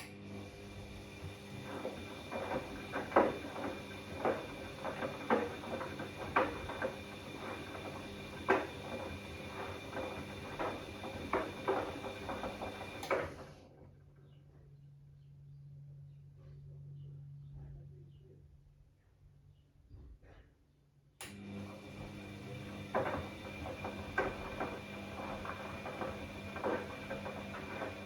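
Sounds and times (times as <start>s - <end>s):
washing machine motor whine: 0.0s - 14.0s, 21.2s - 28.0s.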